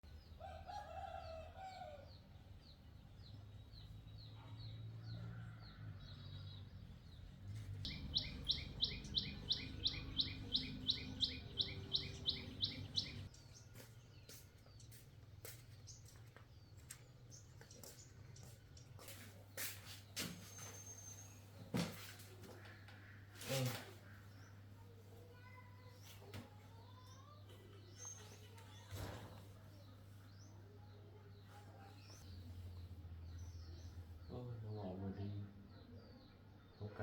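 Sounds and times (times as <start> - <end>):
bird sharp high chirps: 7.9 - 14.4.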